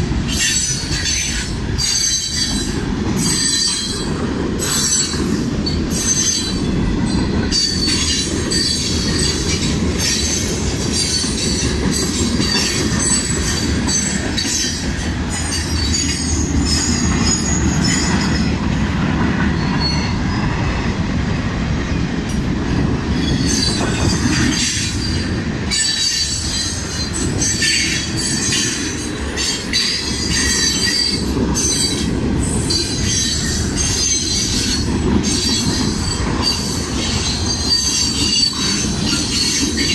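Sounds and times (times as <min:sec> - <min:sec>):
wheels clicking on rails: 0:00.0 - 0:20.7, 0:22.2 - 0:39.9
freight train cars rumbling: 0:00.0 - 0:39.9
wheel squeal: 0:00.3 - 0:11.6, 0:23.2 - 0:39.9.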